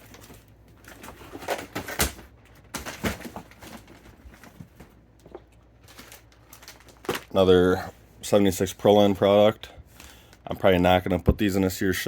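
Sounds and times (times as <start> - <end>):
packaging knocks and rustles: 0.0 - 7.4.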